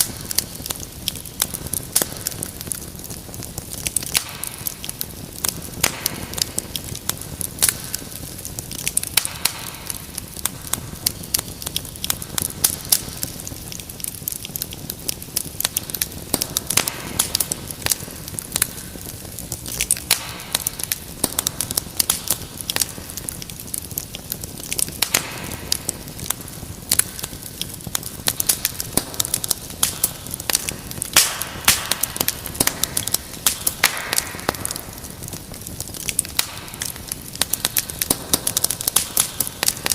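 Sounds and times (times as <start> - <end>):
burning wood hissing: 0.0 - 39.9
wood fire crackling: 0.0 - 39.9.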